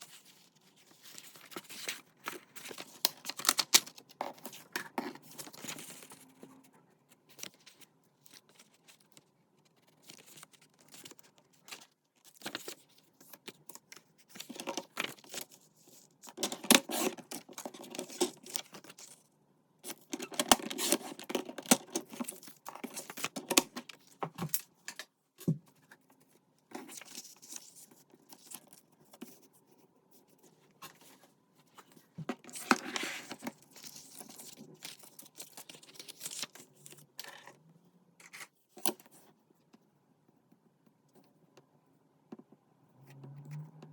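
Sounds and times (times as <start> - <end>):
paper tearing and rustling: 16.4 - 19.1.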